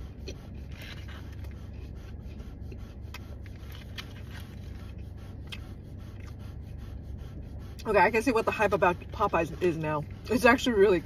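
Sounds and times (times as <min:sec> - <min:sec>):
person chewing crispy sandwich: 0:00.0 - 0:06.7
steady low hum: 0:00.0 - 0:11.0.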